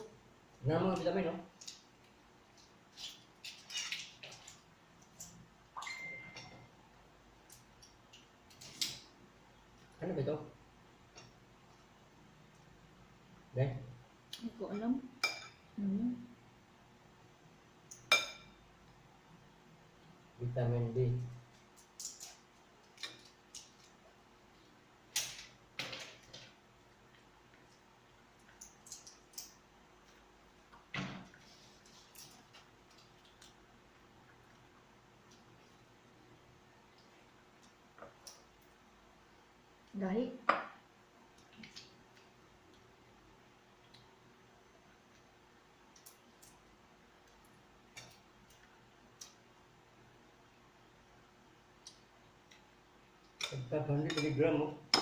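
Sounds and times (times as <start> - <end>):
eating clicks and smacks: 27.6 - 29.6, 45.9 - 46.6.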